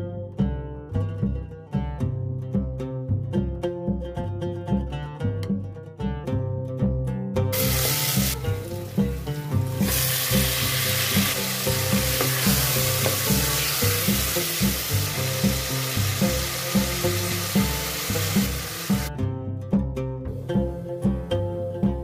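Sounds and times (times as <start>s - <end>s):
meat and onions sizzling in oil: 7.5s - 19.1s.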